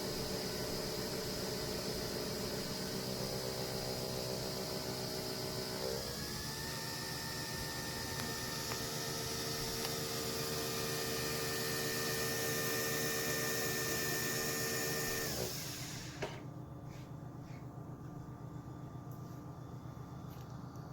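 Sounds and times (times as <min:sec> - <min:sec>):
small electric motor whirring: 0:00.4 - 0:16.3.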